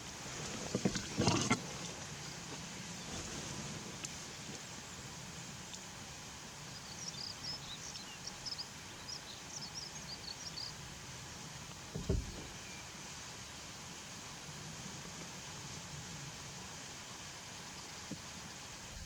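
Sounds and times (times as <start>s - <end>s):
outdoor background hiss: 0.0s - 19.0s
small birds chirping: 6.7s - 10.8s
brief low thump: 12.0s - 12.5s.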